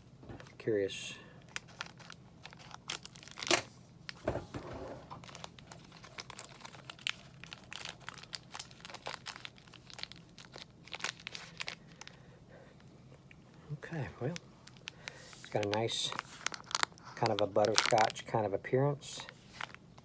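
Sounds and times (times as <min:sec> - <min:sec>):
wrapper crinkling and tearing: 0:01.5 - 0:04.2, 0:05.1 - 0:12.2, 0:14.2 - 0:18.3, 0:19.2 - 0:19.8.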